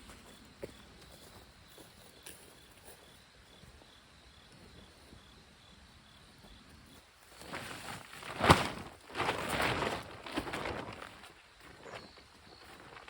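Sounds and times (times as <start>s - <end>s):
insect chirping: 0.0s - 8.1s, 9.1s - 13.0s
rustling and crunching: 7.3s - 13.0s.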